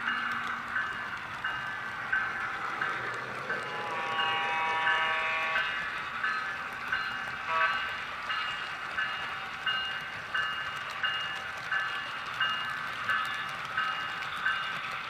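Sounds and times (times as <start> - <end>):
locomotive bell ringing: 0.0 - 15.0.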